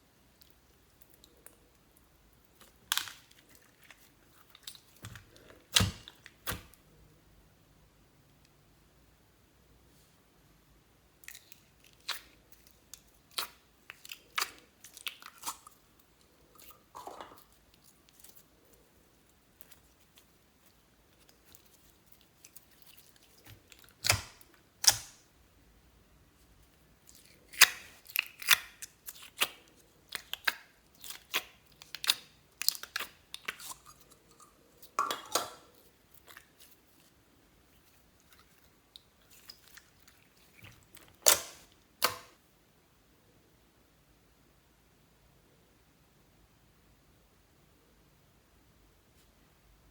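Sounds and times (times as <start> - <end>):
slime clicking and popping: 23.5 - 25.2.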